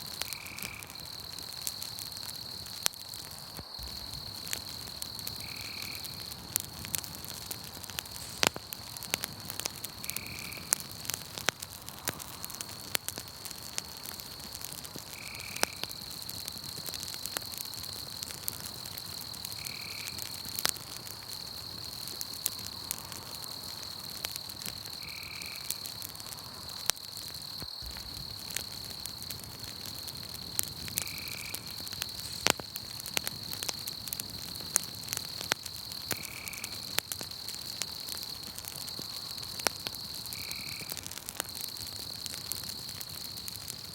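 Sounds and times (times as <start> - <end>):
campfire crackling and popping: 0.0 - 43.9
high-pitched insect trill: 3.6 - 6.3, 27.4 - 34.6.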